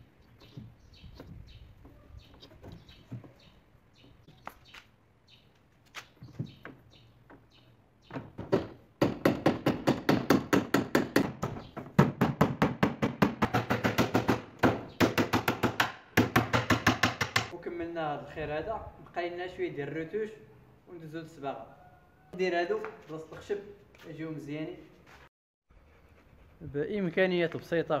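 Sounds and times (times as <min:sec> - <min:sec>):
hammer striking nails into wood: 0:08.1 - 0:17.5.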